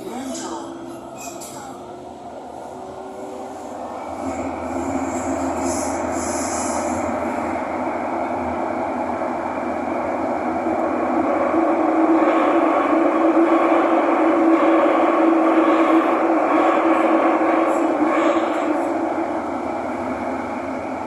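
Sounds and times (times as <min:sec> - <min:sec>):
metro train running noise: 0:00.0 - 0:21.0.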